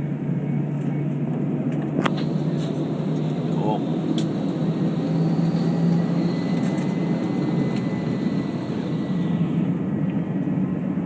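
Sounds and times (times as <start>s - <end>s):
jet engine cabin noise: 0.0s - 11.0s
faint high whine: 2.0s - 9.9s.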